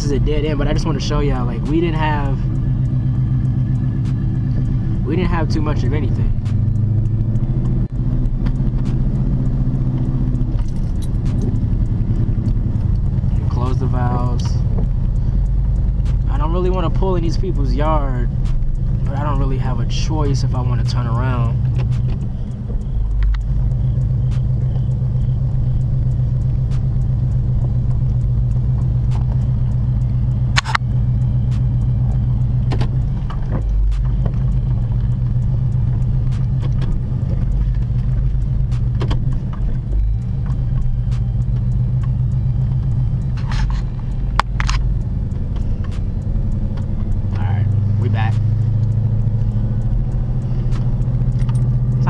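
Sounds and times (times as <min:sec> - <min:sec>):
car engine droning: 0:00.0 - 0:52.0
sharp click: 0:06.4 - 0:09.1, 0:30.5 - 0:30.9, 0:32.6 - 0:35.2, 0:42.8 - 0:51.9
faint ticks: 0:20.1 - 0:52.0.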